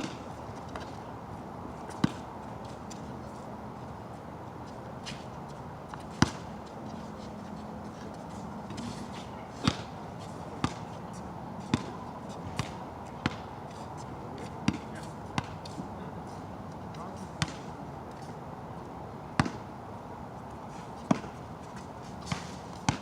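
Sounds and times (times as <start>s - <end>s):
basketball bouncing: 12.6s - 13.4s, 19.4s - 19.6s.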